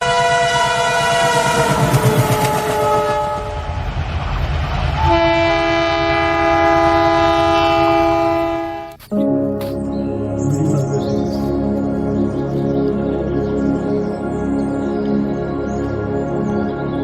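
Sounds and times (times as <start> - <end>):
train horn: 0.0 - 4.0, 5.0 - 9.0.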